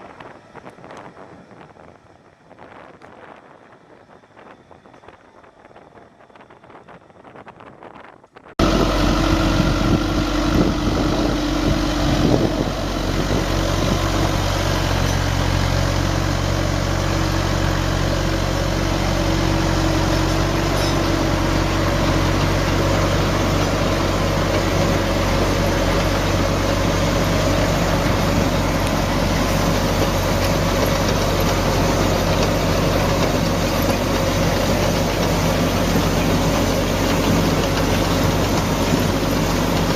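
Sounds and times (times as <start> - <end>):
heavy machine engine running: 8.6 - 39.9.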